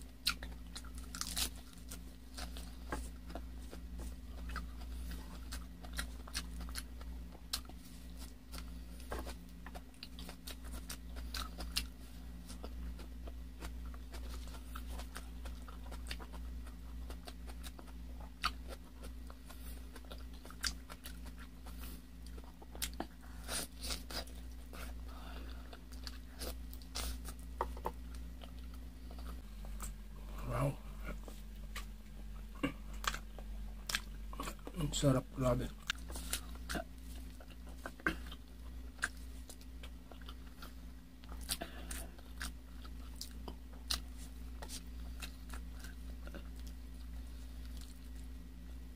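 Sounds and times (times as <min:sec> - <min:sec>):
steady low hum: 0:00.0 - 0:48.9
chewing with wet mouth clicks: 0:00.2 - 0:23.2, 0:32.9 - 0:34.7, 0:35.8 - 0:48.3.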